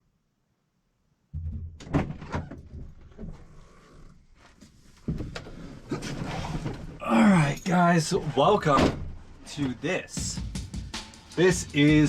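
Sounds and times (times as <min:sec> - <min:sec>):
sharp knocks and clunks: 0:01.3 - 0:03.5.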